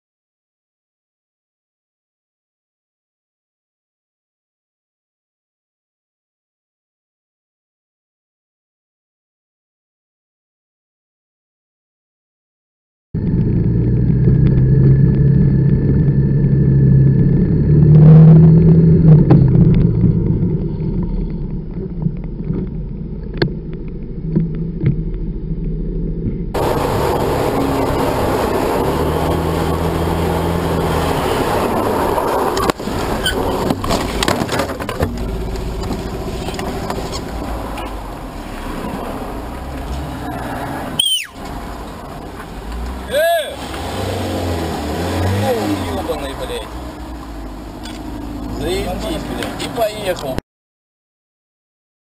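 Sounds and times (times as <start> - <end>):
road noise: 13.2 - 50.4
traffic noise: 13.2 - 50.4
vehicle engine running: 13.2 - 50.4.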